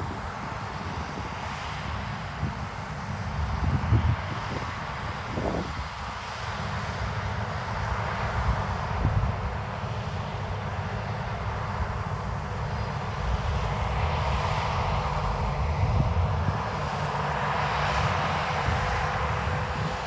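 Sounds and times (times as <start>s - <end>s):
diesel farm machinery rumbling: 7.0s - 20.0s.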